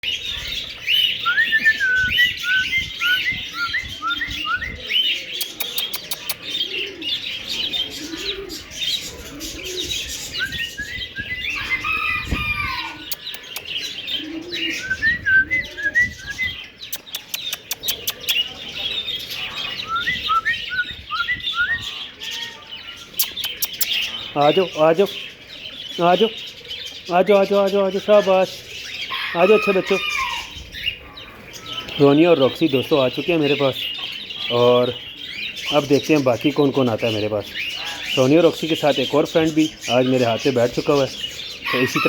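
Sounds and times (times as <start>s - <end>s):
cockatiels chirping: 0.2s - 25.0s.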